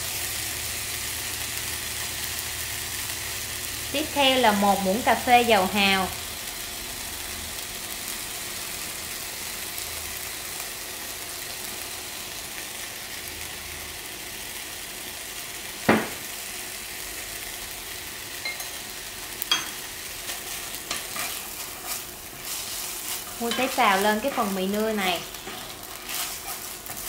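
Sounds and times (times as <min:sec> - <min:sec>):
noodles sizzling in oil: 0:00.0 - 0:27.0
sharp knock: 0:15.9 - 0:16.2.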